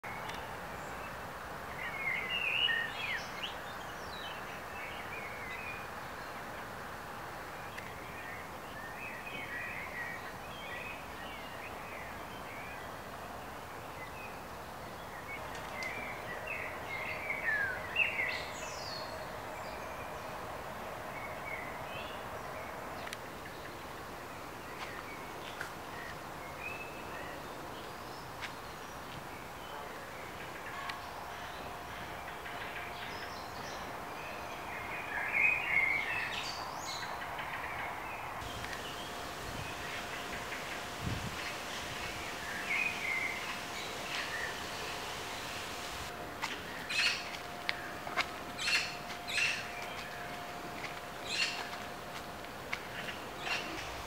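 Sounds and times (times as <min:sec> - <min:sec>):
songbirds chirping and singing: 0:31.5 - 0:46.1
steady background rush: 0:38.4 - 0:46.4.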